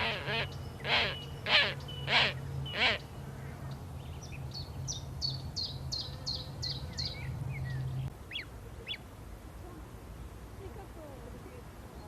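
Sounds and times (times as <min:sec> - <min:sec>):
songbird calling: 0:00.0 - 0:09.1.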